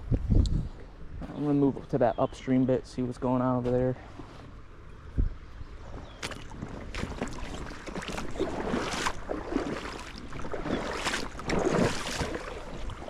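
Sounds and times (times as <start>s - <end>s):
wading splashes in shallow water: 5.8s - 13.0s.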